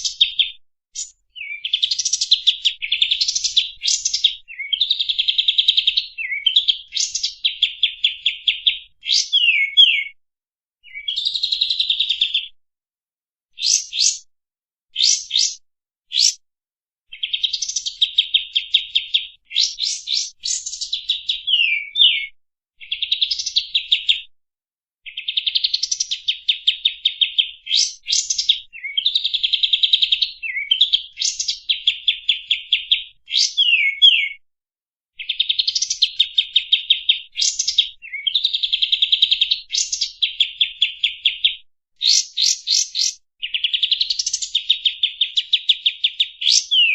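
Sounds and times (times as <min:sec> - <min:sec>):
bulbul chattering song: 0:01.0 - 0:02.4, 0:13.6 - 0:14.2, 0:15.0 - 0:16.4.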